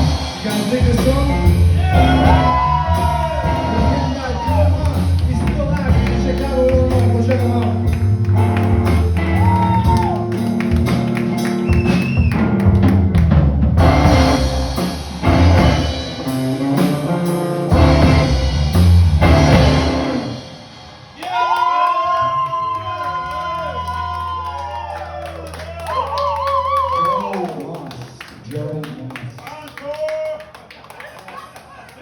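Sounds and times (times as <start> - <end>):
live band music: 0.0 - 27.1.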